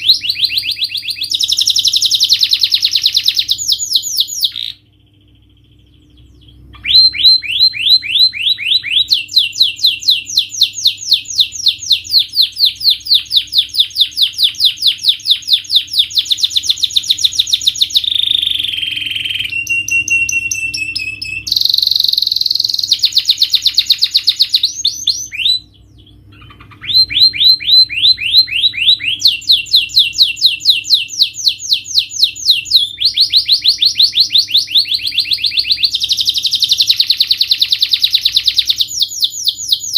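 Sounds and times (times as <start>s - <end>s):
held bird whistle: 0.0s - 4.8s, 6.8s - 25.7s, 26.3s - 39.9s
canary singing trills: 0.0s - 39.9s.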